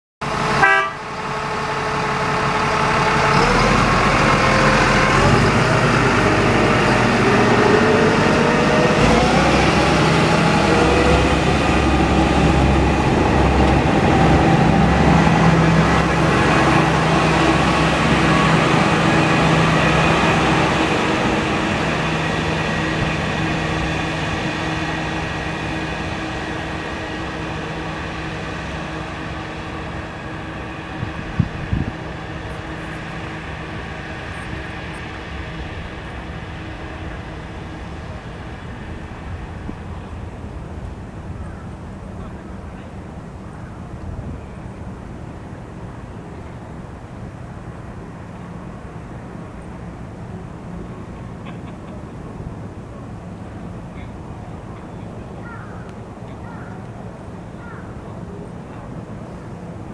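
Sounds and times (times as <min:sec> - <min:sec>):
trolley train drive humming: 0:00.2 - 0:59.9.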